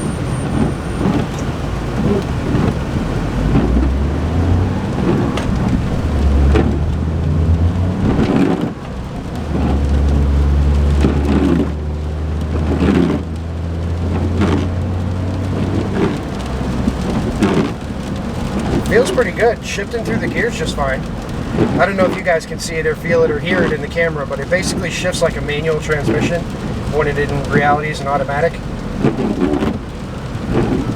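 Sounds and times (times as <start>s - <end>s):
car engine drone: 0.0s - 30.9s
road and tyre rumble: 0.0s - 30.9s.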